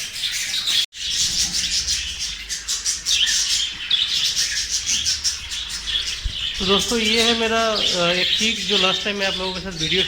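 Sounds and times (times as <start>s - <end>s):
budgerigars chattering and chirping: 0.0s - 10.0s.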